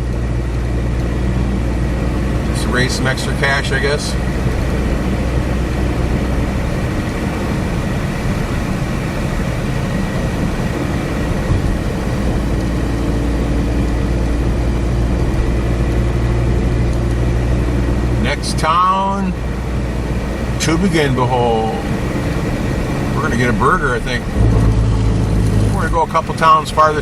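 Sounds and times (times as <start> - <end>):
wind buffeting microphone: 4.2 - 17.9.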